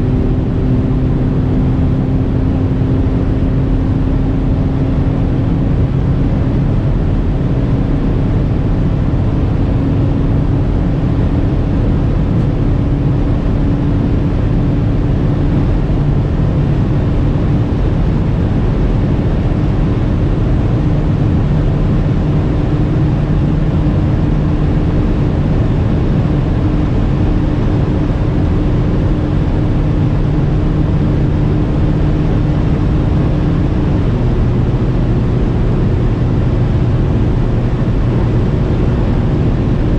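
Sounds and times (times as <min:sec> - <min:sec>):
wind noise: 0:00.0 - 0:39.9.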